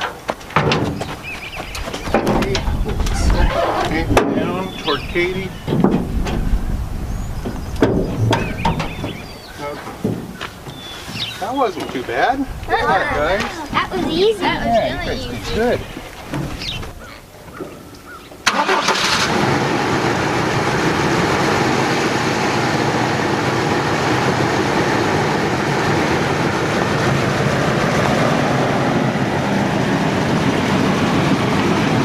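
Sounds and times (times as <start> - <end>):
pickup engine starting and running: 18.4 - 32.0.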